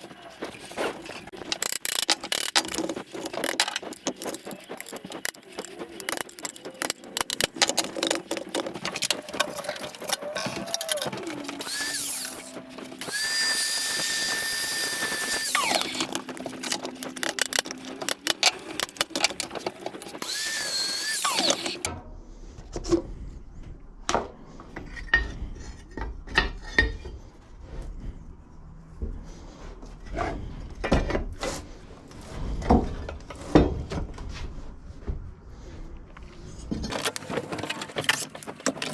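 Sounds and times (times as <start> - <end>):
metal parts clicking and rattling: 0.0 - 21.9, 36.8 - 38.9
parts knocking and clanking: 0.0 - 21.9, 36.7 - 38.9
power drill whining: 0.6 - 21.9.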